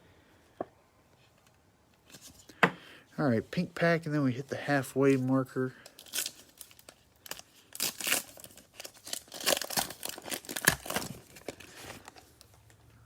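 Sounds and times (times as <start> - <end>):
cellophane wrapper crinkling: 5.8 - 12.8.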